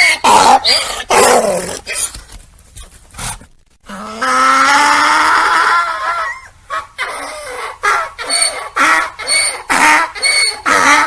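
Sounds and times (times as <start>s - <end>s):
donkey braying: 3.9s - 11.0s.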